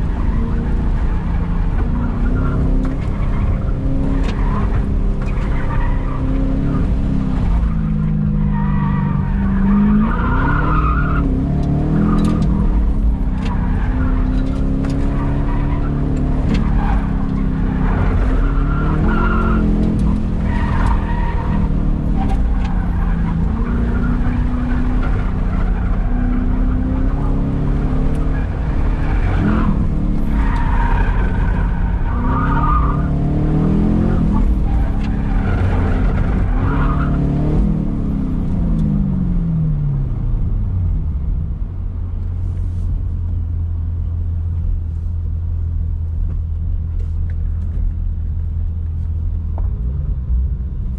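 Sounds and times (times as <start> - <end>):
tires squealing: 0.0 - 39.7
car engine revving: 0.0 - 50.9.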